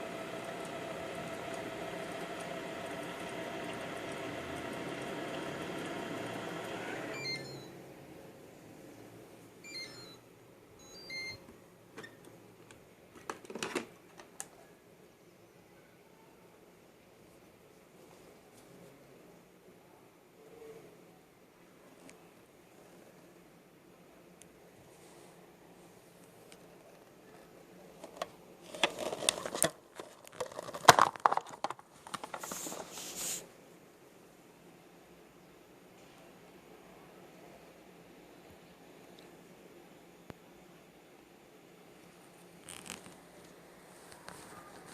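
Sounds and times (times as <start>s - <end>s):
robot vacuum motor running: 0.0s - 7.4s
electronic beep chimes: 7.2s - 7.7s
rustling and crinkling: 26.2s - 33.5s, 42.0s - 44.9s.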